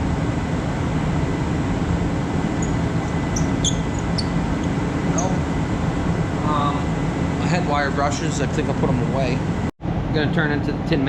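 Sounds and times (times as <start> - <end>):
short high squeaks: 2.5 - 5.5.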